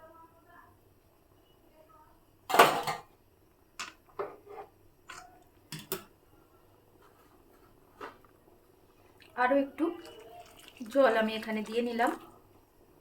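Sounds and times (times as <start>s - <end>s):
kitchenware clinking against pot: 2.5s - 3.1s, 5.1s - 6.1s.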